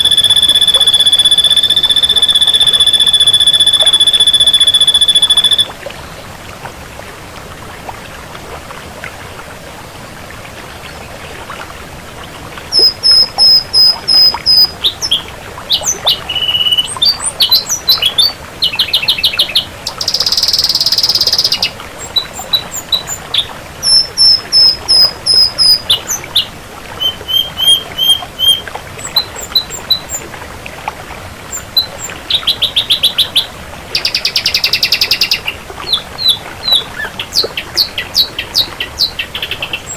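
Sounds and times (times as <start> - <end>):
bird singing: 0.0 - 5.7, 12.7 - 30.2, 31.5 - 39.9.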